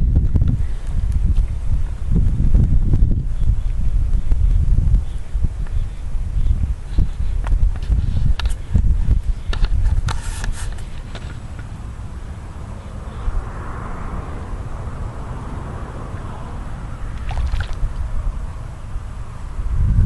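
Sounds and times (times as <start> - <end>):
wind rumbling on microphone: 0.0 - 20.0
soft water swishing: 16.4 - 18.6
paddle splashes: 17.2 - 17.9.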